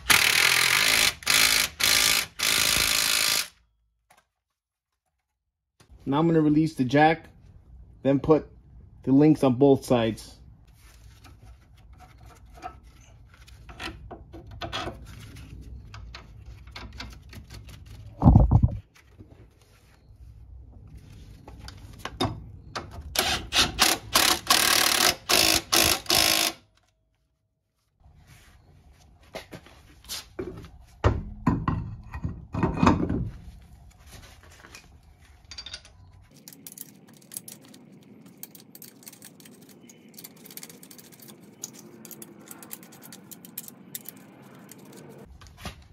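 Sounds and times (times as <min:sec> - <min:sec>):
ratchet clicking: 0:23.5 - 0:26.6.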